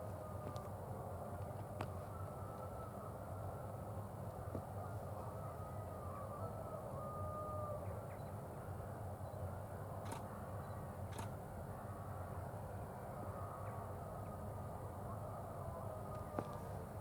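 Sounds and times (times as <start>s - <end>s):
sharp clicks: 10.0s - 10.3s, 11.1s - 11.4s.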